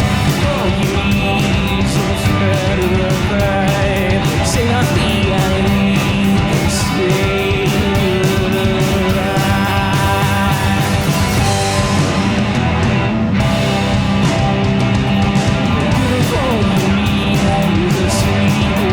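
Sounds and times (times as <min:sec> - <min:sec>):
bass guitar: 0:00.0 - 0:18.9
drums: 0:00.0 - 0:18.9
electric guitar: 0:00.0 - 0:18.9.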